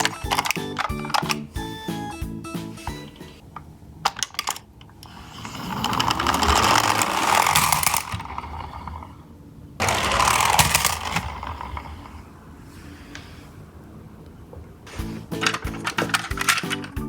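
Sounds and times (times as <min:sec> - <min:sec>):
toy truck motor whirring: 0:05.0 - 0:09.0, 0:09.8 - 0:12.2.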